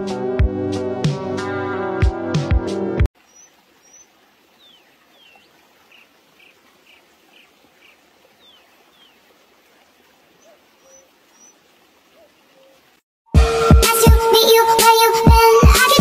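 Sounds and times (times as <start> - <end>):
music: 0.0 - 3.1, 13.3 - 16.0
faint birdsong: 3.2 - 13.0.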